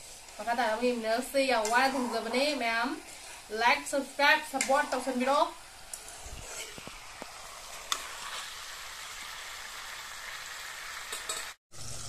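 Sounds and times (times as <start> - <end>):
metal ladle stirring in wok: 0.0 - 3.7, 4.6 - 8.6
food sizzling in gravy: 0.0 - 12.0.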